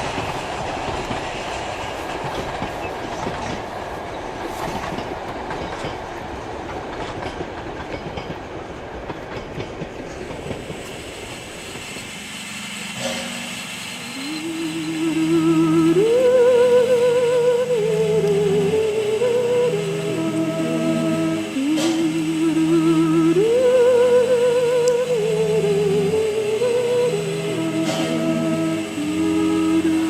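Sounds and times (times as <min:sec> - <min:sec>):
steam train rumbling on track: 0:00.0 - 0:30.0
music with held notes: 0:14.5 - 0:30.0.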